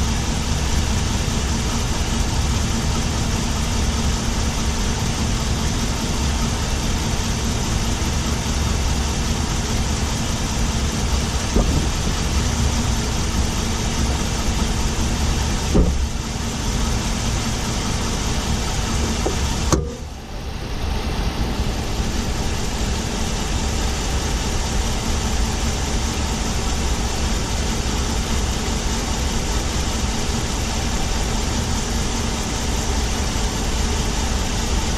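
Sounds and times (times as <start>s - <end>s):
engine ticking: 0.0s - 34.9s
truck engine running: 0.0s - 34.9s
sharp knocks: 11.5s - 12.2s, 15.7s - 16.2s, 19.0s - 20.0s.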